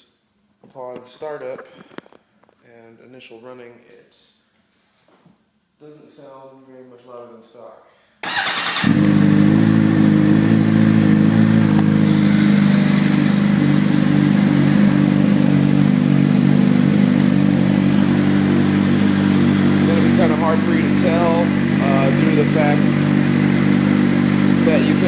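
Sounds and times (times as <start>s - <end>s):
motorcycle engine idling: 8.3s - 25.0s.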